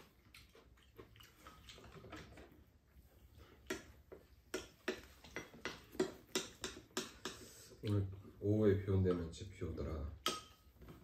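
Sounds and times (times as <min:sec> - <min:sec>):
people chewing: 0:00.0 - 0:08.2.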